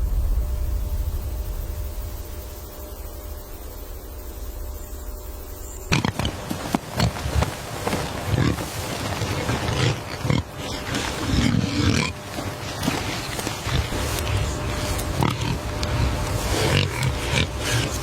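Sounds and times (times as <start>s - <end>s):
low background hum: 0.0s - 18.0s
large animal calling: 5.9s - 18.0s.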